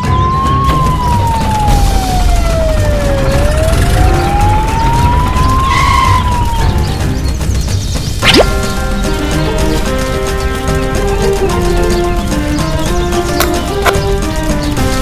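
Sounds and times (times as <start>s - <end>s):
siren wailing: 0.0s - 7.1s.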